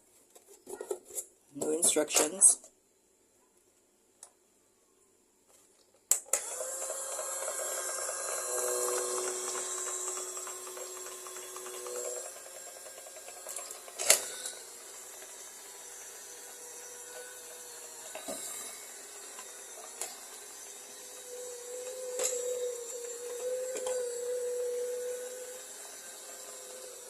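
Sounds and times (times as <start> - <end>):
small motor whining: 6.2 - 27.0.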